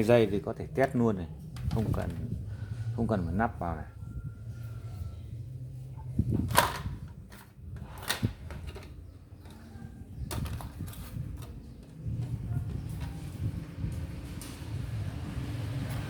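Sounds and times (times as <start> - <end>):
plastic parts clicking and knocking: 6.4 - 12.0.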